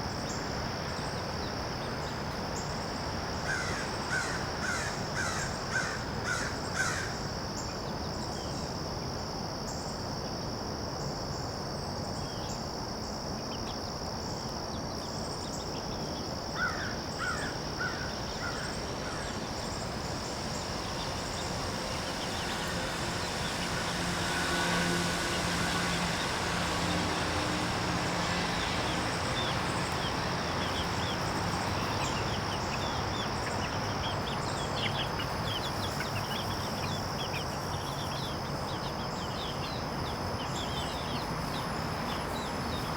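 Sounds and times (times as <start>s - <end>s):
crow cawing: 3.5s - 7.2s, 16.6s - 19.2s
high-pitched drone: 17.8s - 42.9s
low rumble: 18.2s - 34.1s.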